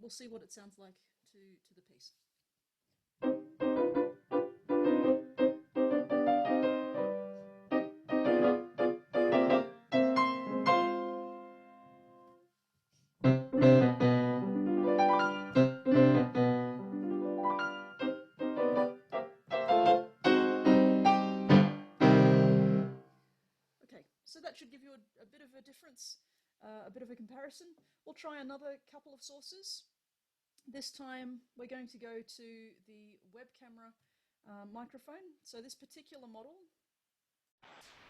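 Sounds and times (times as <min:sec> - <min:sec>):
piano piece: 0:03.2 - 0:12.4, 0:13.2 - 0:23.0.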